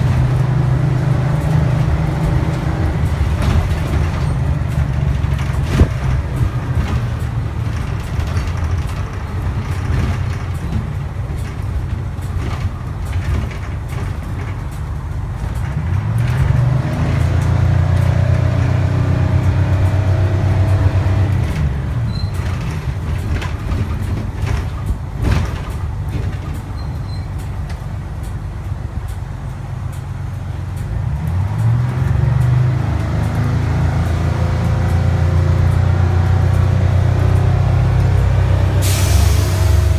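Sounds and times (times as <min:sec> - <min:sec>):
rising engine whine: 0:00.0 - 0:13.1, 0:31.0 - 0:39.9
bus diesel engine running: 0:00.0 - 0:39.9.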